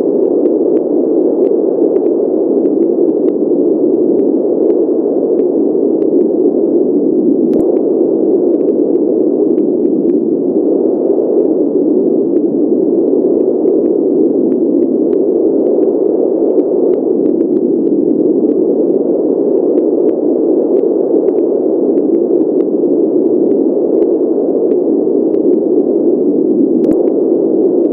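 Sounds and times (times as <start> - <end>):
steady pink noise: 0.0 - 27.9
faint ticks: 12.3 - 25.6.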